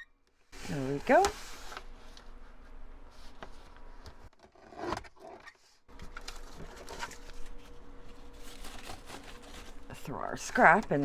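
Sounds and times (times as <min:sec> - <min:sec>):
paper rustling and scraping: 0:00.6 - 0:10.8.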